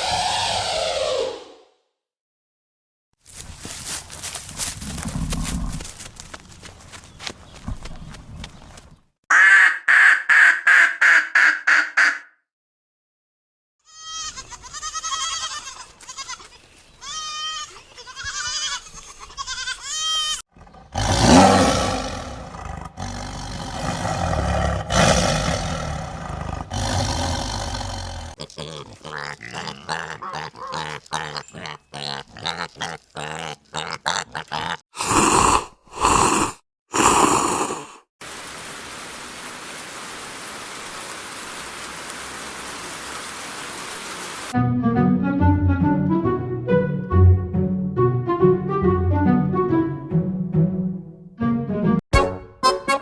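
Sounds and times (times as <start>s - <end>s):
long rough animal call: 20.5s - 38.0s
animal calls: 28.4s - 34.8s.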